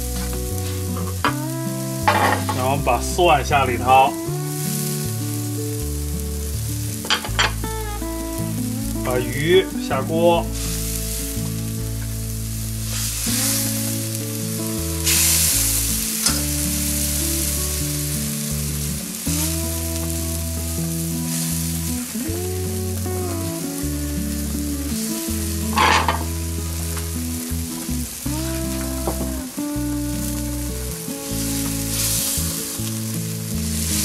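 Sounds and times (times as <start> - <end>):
background music low notes: 0.0 - 34.0
fish sizzling in hot oil: 0.0 - 34.0
ladle clattering in wok: 2.1 - 2.6.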